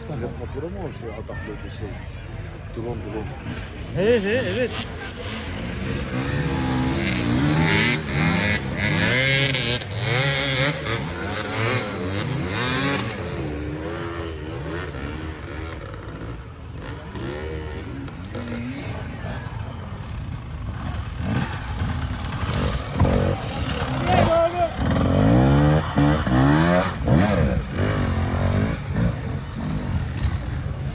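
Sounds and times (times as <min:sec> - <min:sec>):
motorcycle engines revving: 0:00.0 - 0:30.9.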